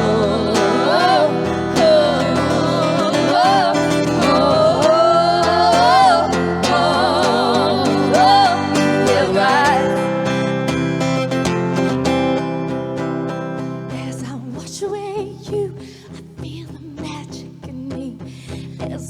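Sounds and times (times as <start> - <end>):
person singing wordless melody: 0.0 - 10.7
acoustic guitar chords: 0.0 - 19.0.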